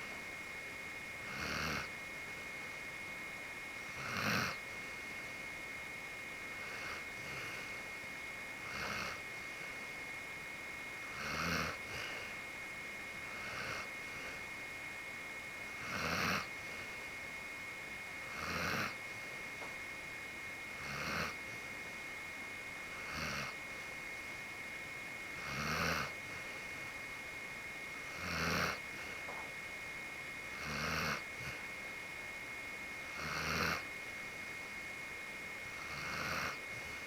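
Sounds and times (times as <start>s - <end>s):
dog snoring: 1.2s - 2.0s, 3.8s - 5.4s, 6.5s - 8.0s, 8.6s - 9.9s, 11.0s - 12.4s, 13.2s - 14.6s, 15.7s - 17.0s, 18.2s - 19.3s, 20.7s - 21.7s, 22.8s - 24.0s, 25.3s - 27.0s, 27.9s - 29.5s, 30.4s - 31.8s, 32.9s - 33.9s, 35.6s - 37.0s.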